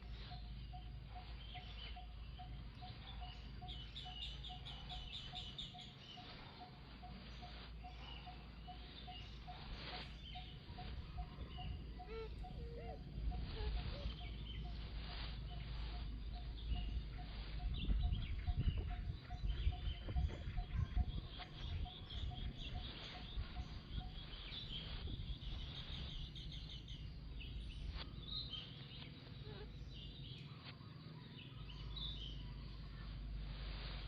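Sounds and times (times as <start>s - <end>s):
high chirping calls: 0.0s - 33.4s
low rumble: 5.0s - 28.6s.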